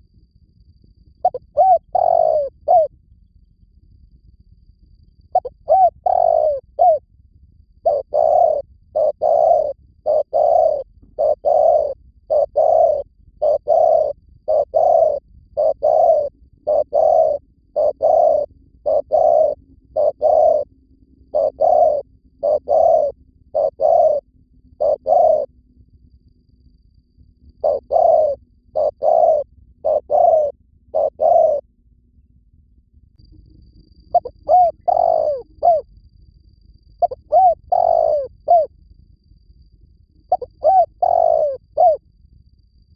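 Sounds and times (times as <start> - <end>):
dove cooing: 1.2 - 2.9, 5.3 - 7.0, 7.8 - 20.7, 21.3 - 24.2, 24.8 - 25.5, 27.6 - 31.6, 34.1 - 35.9, 37.0 - 38.7, 40.3 - 42.0.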